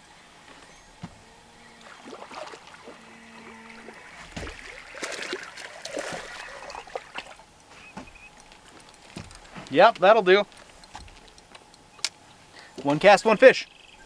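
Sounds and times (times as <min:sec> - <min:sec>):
water splashing and dripping: 0:01.6 - 0:11.8.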